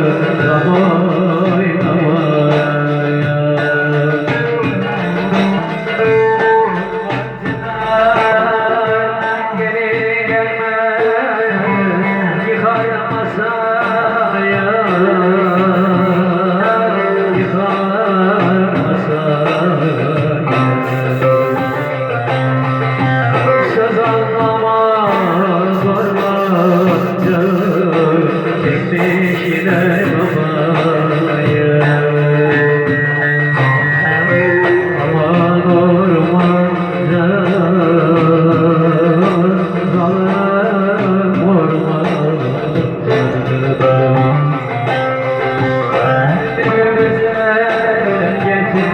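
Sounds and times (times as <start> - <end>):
electric lute melody: 0.0 - 9.6, 14.8 - 17.4, 19.8 - 40.2, 42.3 - 48.9
person singing: 0.0 - 17.8, 19.5 - 22.3, 23.4 - 37.6.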